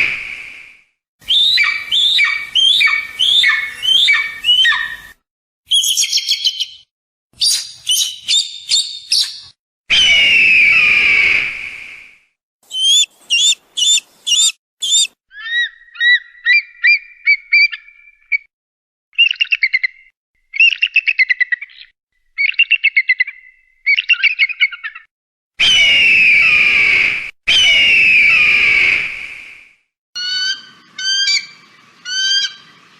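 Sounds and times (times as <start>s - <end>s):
hoarse hawk scream: 1.2s - 5.0s, 9.9s - 11.9s, 12.7s - 16.1s, 25.6s - 29.4s
hawk whistled calls: 1.2s - 6.8s, 12.7s - 17.8s.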